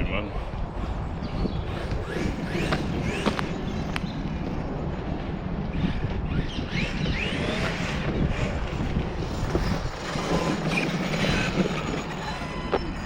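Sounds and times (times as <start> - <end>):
electric toy truck motor whining: 5.8 - 13.0.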